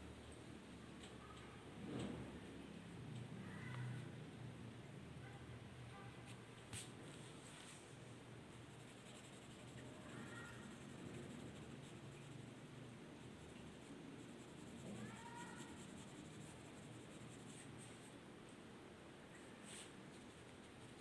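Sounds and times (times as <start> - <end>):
drawing tool scratching on paper: 8.8 - 12.5, 13.8 - 18.0.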